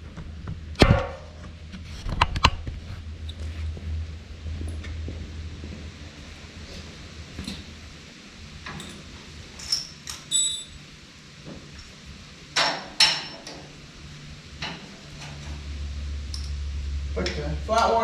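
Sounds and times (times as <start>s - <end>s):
metal tools clinking: 8.7s - 10.8s.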